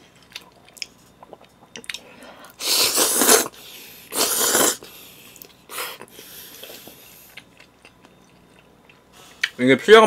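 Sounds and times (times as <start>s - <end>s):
person slurping noodles: 2.6s - 4.9s.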